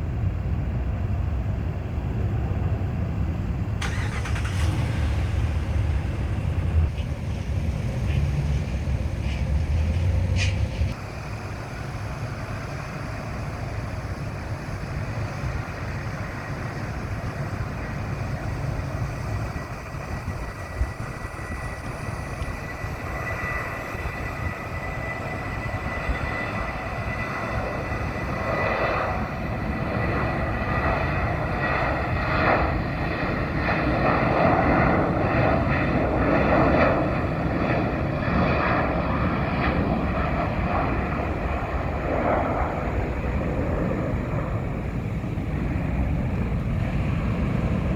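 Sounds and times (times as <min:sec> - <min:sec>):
distant jet airliner engines: 0:00.0 - 0:47.9
low rumble: 0:04.4 - 0:11.0.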